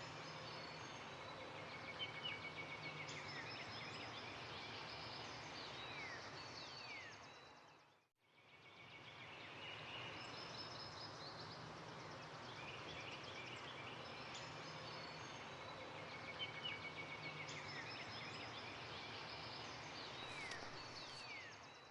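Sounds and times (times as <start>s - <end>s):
birds chirping and trilling: 9.0s - 21.9s.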